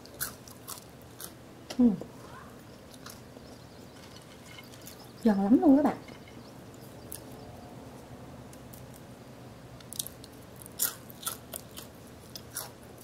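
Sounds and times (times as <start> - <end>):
fries being bitten and chewed: 0.0 - 1.4, 9.8 - 13.0.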